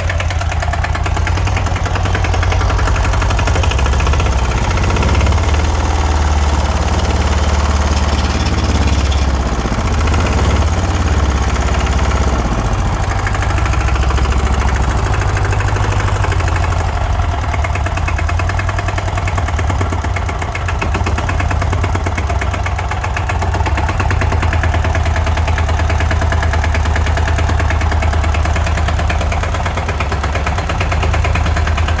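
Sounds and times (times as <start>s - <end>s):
diesel engine running steadily: 0.0s - 32.0s.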